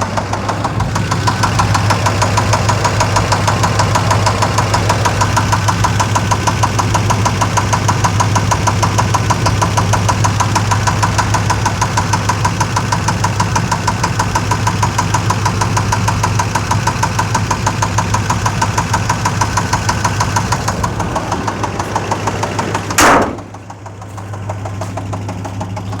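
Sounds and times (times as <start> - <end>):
engine idling: 0.0 - 26.0
engine ticking: 0.0 - 26.0
loud thump: 22.9 - 23.7.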